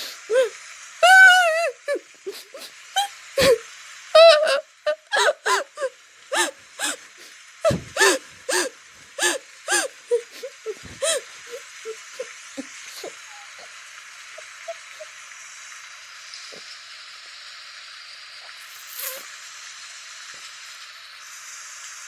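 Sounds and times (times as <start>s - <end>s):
person sobbing and whimpering: 0.0s - 3.6s, 4.2s - 13.7s.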